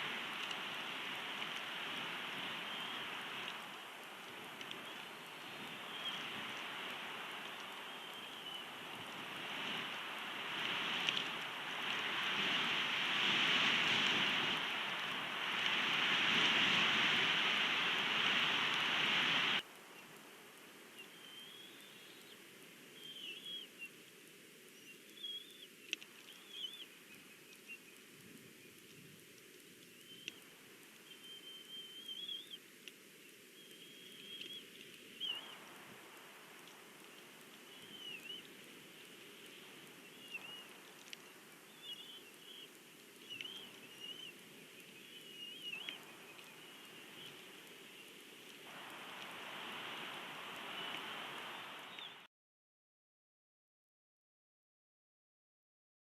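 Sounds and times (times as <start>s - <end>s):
faint clicks: 0.0s - 12.8s, 18.2s - 23.3s, 23.9s - 52.2s
steady outdoor hiss: 0.0s - 52.3s
whistled bird calls: 2.5s - 3.8s, 4.8s - 6.7s, 7.6s - 8.8s, 21.0s - 22.4s, 23.0s - 24.0s, 24.7s - 28.0s, 29.9s - 32.6s, 33.6s - 35.6s, 37.6s - 38.6s, 40.0s - 48.2s, 50.0s - 52.3s.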